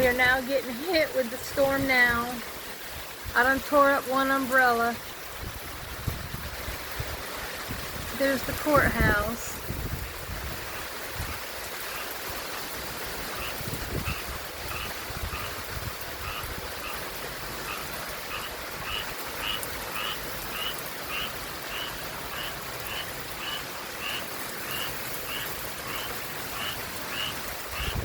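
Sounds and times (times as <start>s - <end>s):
rain: 0.0s - 28.0s
wind: 0.0s - 28.0s
frog calling raspy notes: 13.4s - 15.6s, 16.2s - 17.0s, 17.6s - 28.0s.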